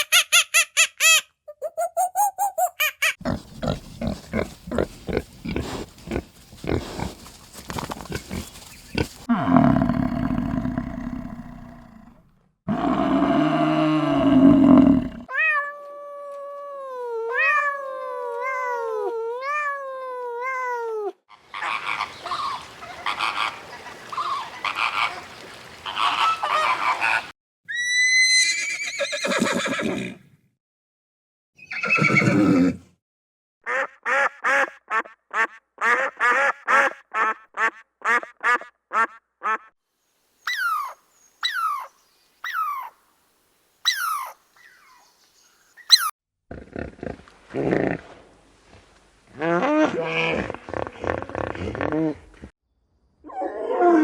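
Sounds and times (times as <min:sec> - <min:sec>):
farm animals calling: 0:43.9 - 0:45.1, 0:45.8 - 0:46.1.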